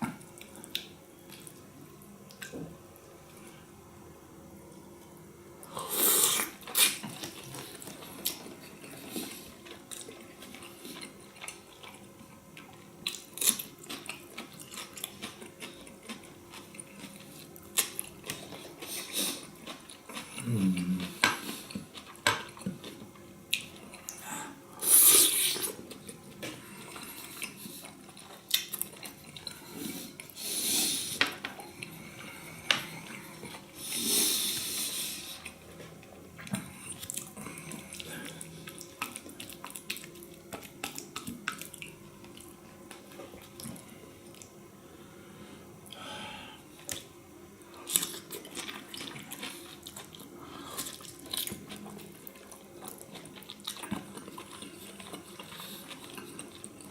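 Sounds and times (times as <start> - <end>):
wet chewing and smacking: 6.4 - 24.2, 25.4 - 30.4, 35.4 - 44.6, 47.8 - 56.9
low throat sound: 20.4 - 21.2
wet hissy mouth sounds: 24.8 - 25.8.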